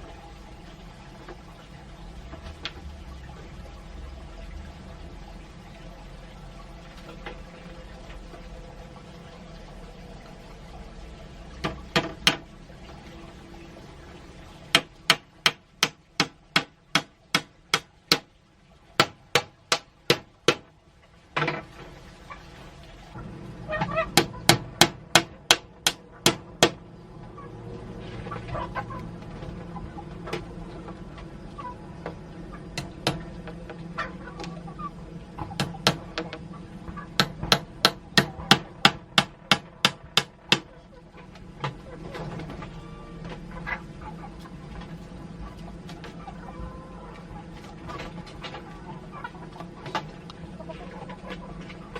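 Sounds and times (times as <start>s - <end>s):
sharp knocks: 11.6s - 12.5s, 14.7s - 18.3s, 19.0s - 20.7s, 37.2s - 40.7s.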